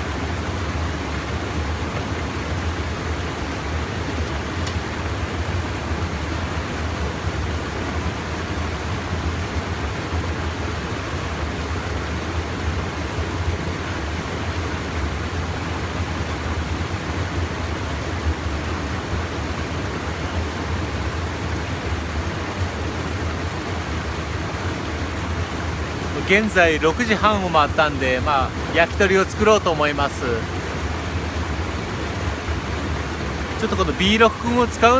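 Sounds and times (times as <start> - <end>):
stream water pouring over weir: 0.0 - 34.9.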